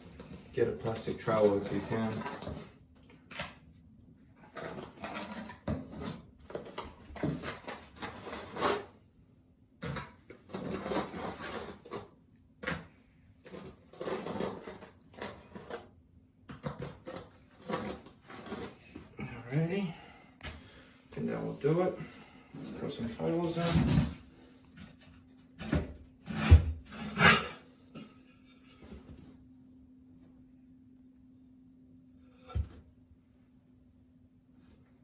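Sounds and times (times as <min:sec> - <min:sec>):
trowel scraping cement: 0:00.0 - 0:02.8, 0:04.4 - 0:08.9, 0:09.8 - 0:12.1, 0:13.4 - 0:15.9, 0:16.5 - 0:19.7, 0:25.6 - 0:28.1.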